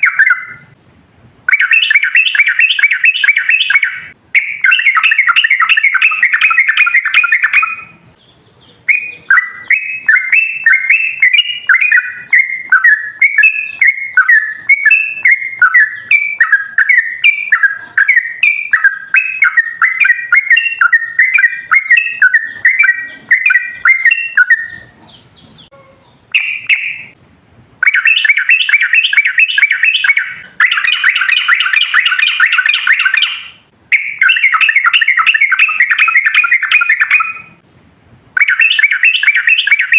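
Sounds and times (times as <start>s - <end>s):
bulbul singing bubbly chatter: 1.5s - 25.4s.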